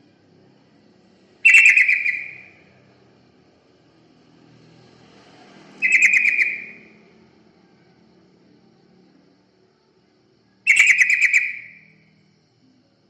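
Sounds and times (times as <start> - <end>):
bird rattling call: 1.4 - 2.5, 5.8 - 6.8.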